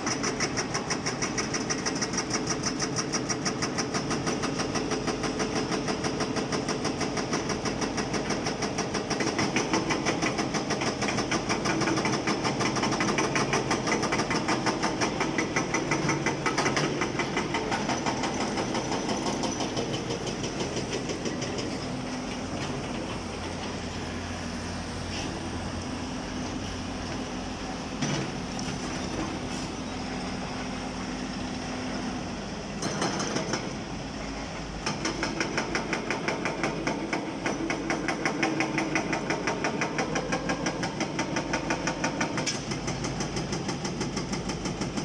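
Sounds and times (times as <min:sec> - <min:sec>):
hydraulic rock breaker hammering: 0:00.1 - 0:21.9, 0:34.8 - 0:45.0.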